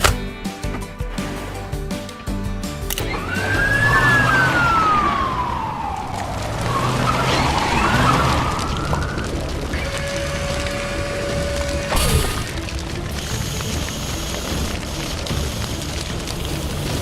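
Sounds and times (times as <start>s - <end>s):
siren wailing: 3.0s - 12.8s.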